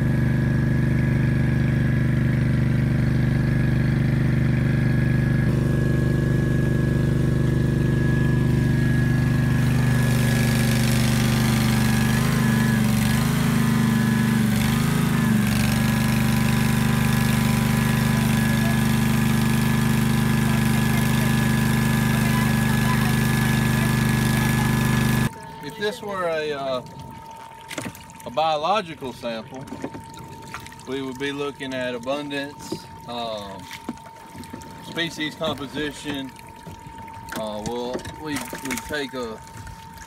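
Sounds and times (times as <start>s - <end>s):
engine running steadily: 0.0s - 40.0s.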